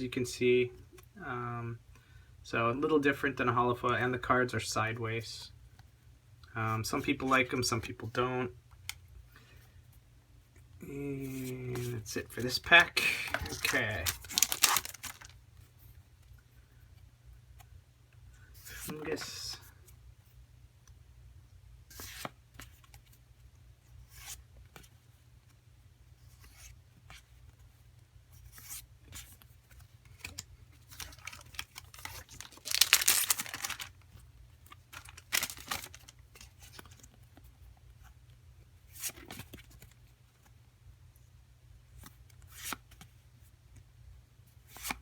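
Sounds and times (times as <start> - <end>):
cards rustling and sliding: 11.2 - 15.4, 21.9 - 22.8, 24.0 - 24.4, 28.4 - 37.1, 44.7 - 45.0
foil pack tearing: 13.4 - 15.3, 30.9 - 33.9, 35.0 - 36.1.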